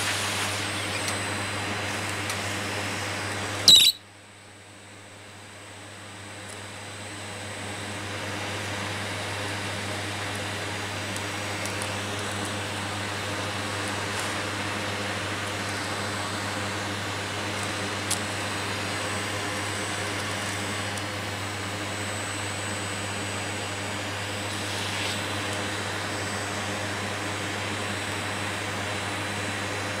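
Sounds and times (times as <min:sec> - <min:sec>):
vacuum cleaner running: 0:00.0 - 0:03.7, 0:05.9 - 0:30.0.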